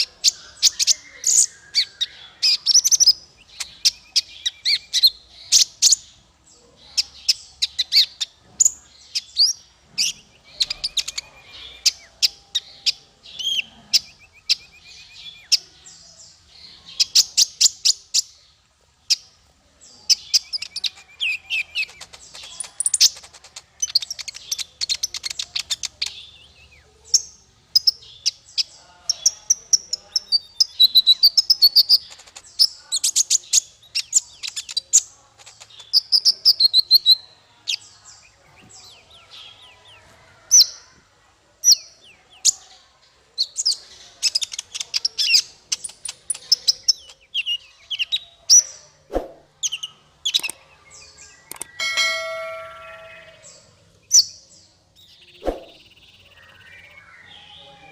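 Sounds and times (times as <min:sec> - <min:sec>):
songbird singing: 0:00.0 - 0:57.9.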